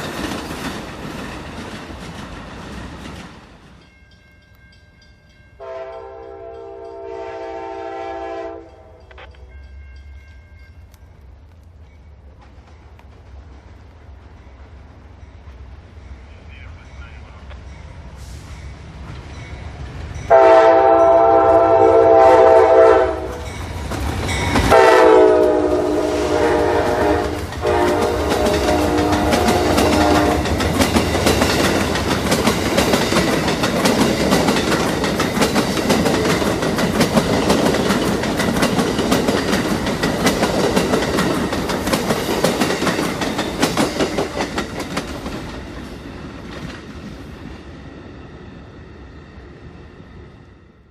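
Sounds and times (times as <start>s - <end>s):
train wheels clickety-clack: 0.0s - 4.6s, 8.7s - 20.5s, 23.2s - 47.6s
train horn chord blasts: 5.6s - 9.1s, 20.3s - 23.6s, 24.7s - 30.5s.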